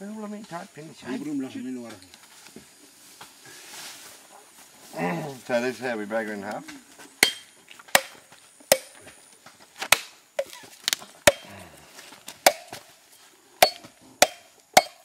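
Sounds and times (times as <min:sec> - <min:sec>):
coconut being struck: 0:07.2 - 0:09.0, 0:09.9 - 0:10.6, 0:11.2 - 0:11.6, 0:12.4 - 0:12.8, 0:13.6 - 0:15.0.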